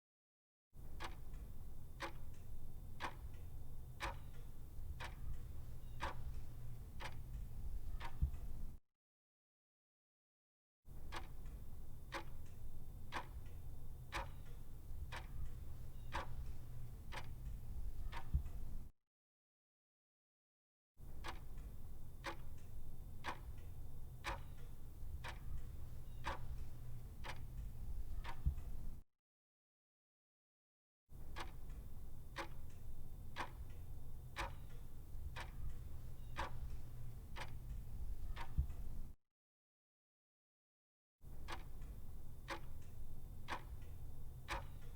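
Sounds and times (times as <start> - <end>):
clock ticking: 1.0 - 8.7, 11.1 - 18.8, 21.2 - 29.0, 31.4 - 39.1, 41.5 - 44.9
steady low hum: 1.4 - 8.8, 11.5 - 18.9, 21.6 - 29.0, 31.7 - 39.2
sharp ticks: 21.2 - 28.8, 33.4 - 38.9, 41.5 - 44.9.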